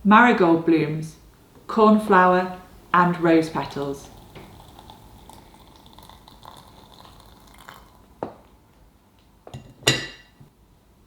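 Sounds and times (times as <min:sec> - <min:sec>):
crockery knocking and clinking: 0:09.5 - 0:10.4.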